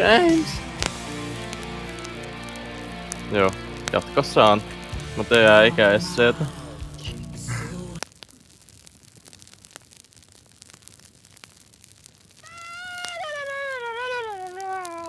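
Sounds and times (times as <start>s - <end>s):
cat yowling: 0.0s - 0.6s, 12.4s - 15.0s
faint crackling clicks: 0.0s - 7.4s, 8.0s - 15.0s.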